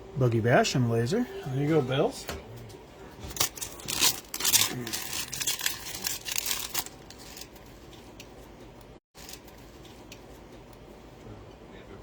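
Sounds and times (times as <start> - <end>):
plastic wrapper crinkling and tearing: 3.4 - 7.5.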